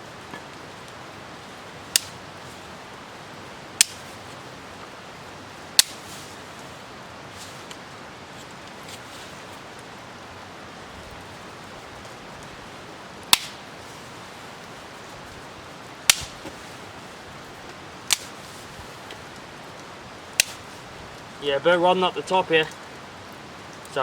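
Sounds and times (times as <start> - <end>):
light rain hissing: 0.0 - 24.0
wood being split with knife: 5.8 - 6.1, 13.3 - 13.6, 16.1 - 16.6, 20.4 - 20.7.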